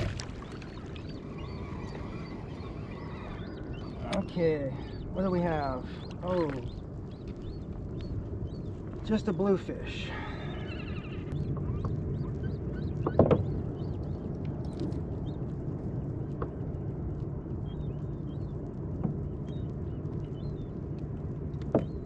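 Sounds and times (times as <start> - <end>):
water washing around a kayak: 0.0 - 4.2.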